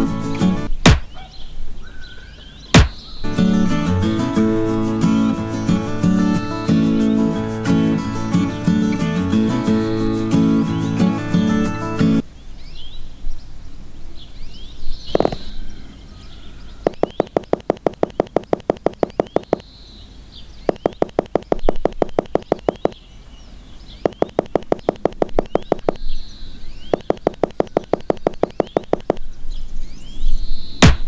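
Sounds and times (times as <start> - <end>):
faint bird chirps: 0.7 - 3.3, 12.4 - 30.8
knock: 15.2 - 15.4
rapid even clicking: 16.9 - 19.6, 20.7 - 23.0, 24.0 - 26.0, 26.9 - 29.2.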